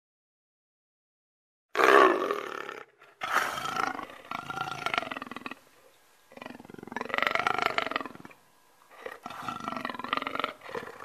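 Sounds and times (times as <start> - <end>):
big cat rasping roars: 1.8 - 5.6, 9.0 - 11.0.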